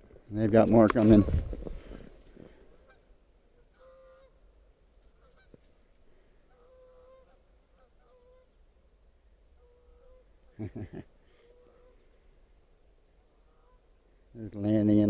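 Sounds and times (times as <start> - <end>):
distant geese honking: 2.8 - 4.4, 13.3 - 14.0.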